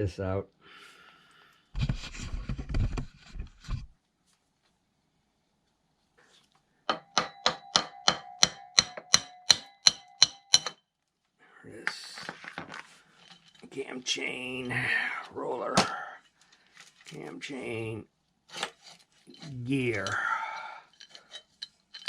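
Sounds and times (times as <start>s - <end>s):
metal parts scraping: 12.3s - 13.8s, 18.5s - 22.0s.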